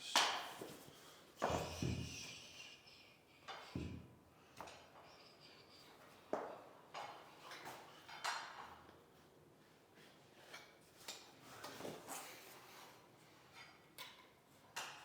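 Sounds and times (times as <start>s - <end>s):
knocks and clicks of flooring work: 3.5s - 4.9s.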